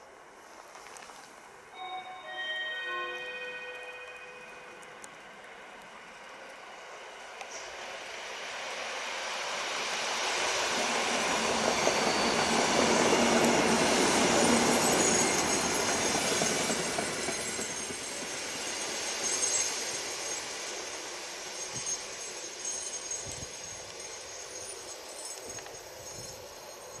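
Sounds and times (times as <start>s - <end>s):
train rushing past: 1.8s - 27.0s
high wheel squeal: 11.6s - 27.0s.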